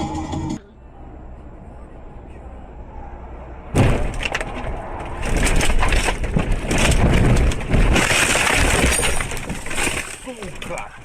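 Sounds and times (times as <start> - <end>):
car crash impact: 3.7 - 10.7
metal crunching and scraping: 3.8 - 11.0.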